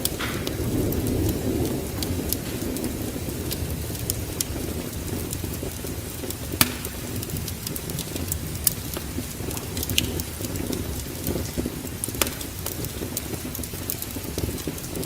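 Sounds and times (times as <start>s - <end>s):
steady low rumble: 0.0s - 6.5s
wood fire crackling: 0.0s - 15.0s.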